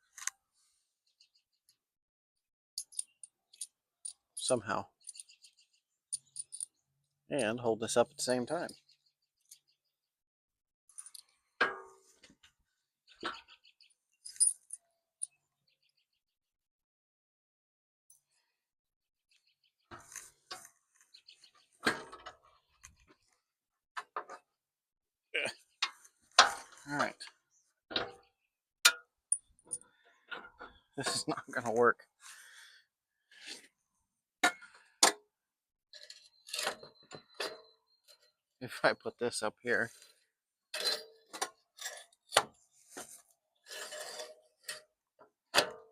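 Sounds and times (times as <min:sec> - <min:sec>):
metal parts clanking: 0:02.8 - 0:05.3, 0:06.1 - 0:06.7, 0:14.2 - 0:14.8, 0:29.3 - 0:31.8, 0:40.7 - 0:42.4.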